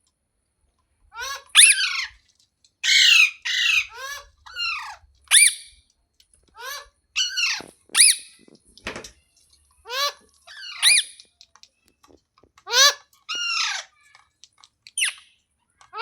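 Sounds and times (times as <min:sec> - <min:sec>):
parakeet calls: 0:01.2 - 0:02.2, 0:02.8 - 0:05.7, 0:06.6 - 0:08.4, 0:09.9 - 0:11.2, 0:12.7 - 0:14.1.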